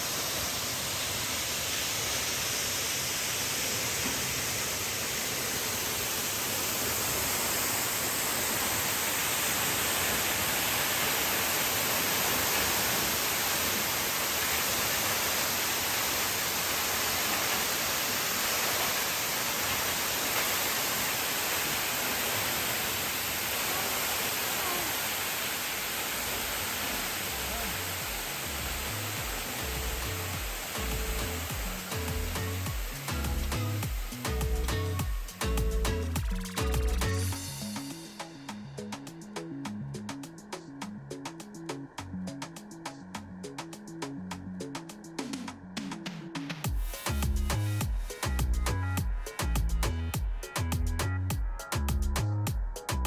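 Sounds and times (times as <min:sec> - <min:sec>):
falling water rushing: 0:00.0 - 0:38.1.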